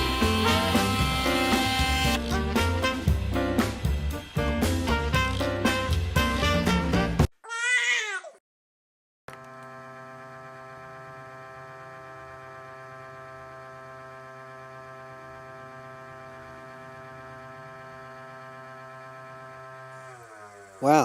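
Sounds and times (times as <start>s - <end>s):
router spindle whine: 0.0s - 2.2s, 9.3s - 21.0s.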